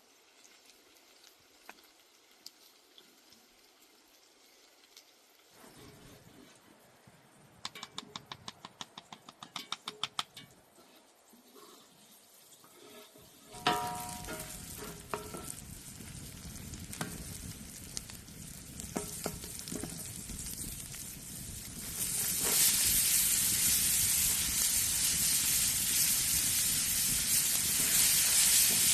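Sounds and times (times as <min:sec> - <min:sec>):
food sizzling in pan: 0:10.8 - 0:28.9
metallic clatter of food into pan: 0:12.6 - 0:15.6, 0:18.9 - 0:20.1.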